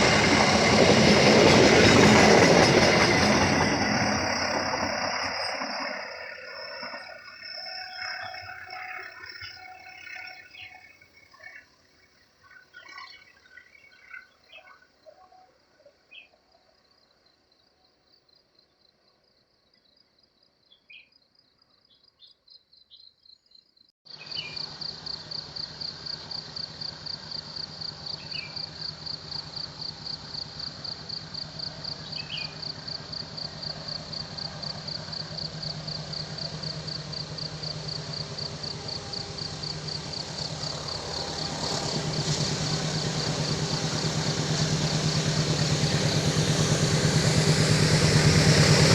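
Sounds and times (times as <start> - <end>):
heavy vehicle approaching: 0.0 - 10.8, 24.6 - 48.9
insects trilling: 0.0 - 15.0, 22.8 - 48.9
insect chirps: 1.7 - 15.2, 16.0 - 47.2
engine hum and road noise: 24.5 - 48.9.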